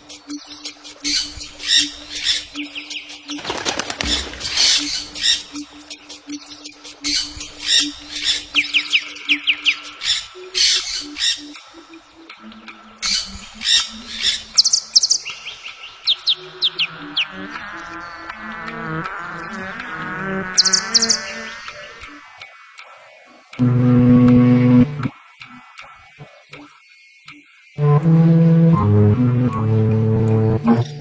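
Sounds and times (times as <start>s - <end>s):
warbling bird trill: 0.2s - 22.2s
birds squawking and chirping: 0.4s - 22.2s
low pulsing tone: 23.6s - 25.1s.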